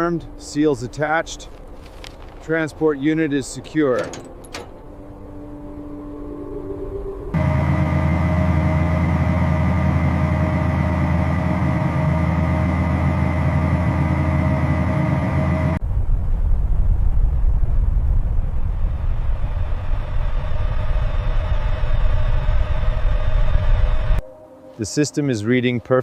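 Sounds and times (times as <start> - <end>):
constant whine: 0.0 - 24.3
low uneven rumble: 1.3 - 24.2
heavy vehicle engine running: 7.2 - 15.8, 18.7 - 24.2.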